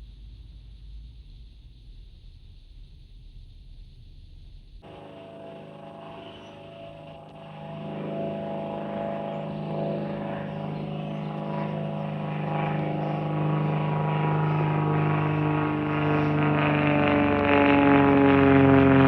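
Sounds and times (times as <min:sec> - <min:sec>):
aircraft engine drone: 0:04.8 - 0:19.0.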